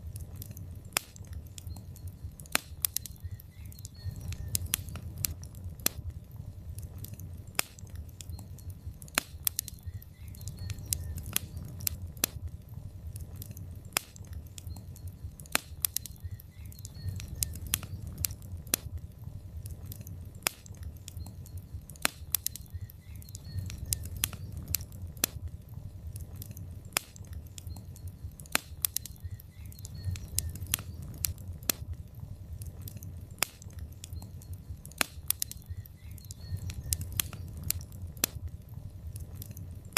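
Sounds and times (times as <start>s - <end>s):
burning logs crackling: 0.0s - 39.9s
low rumble of fire: 0.0s - 39.9s.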